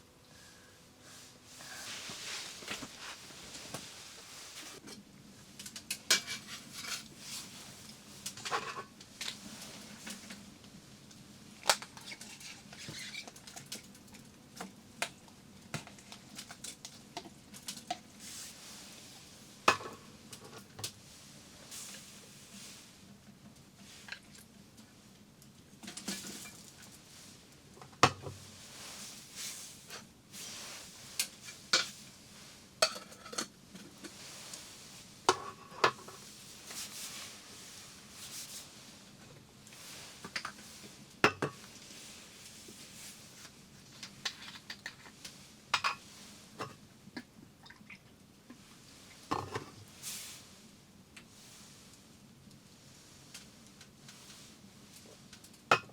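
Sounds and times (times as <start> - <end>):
utensils clinking against pots: 5.6 - 7.1, 32.8 - 33.5.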